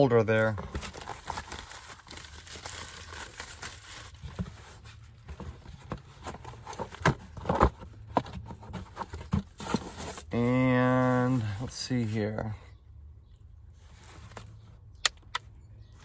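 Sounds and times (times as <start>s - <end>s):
packaging rustling: 0.6s - 10.3s.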